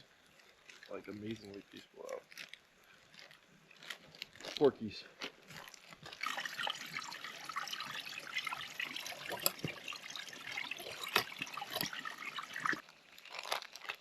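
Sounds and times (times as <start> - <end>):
bacon sizzling and popping: 5.6 - 14.0.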